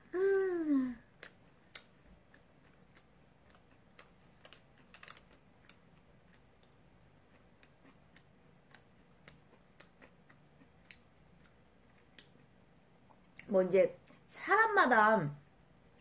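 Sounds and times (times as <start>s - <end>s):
crisp crackles of chewing: 1.0s - 13.5s.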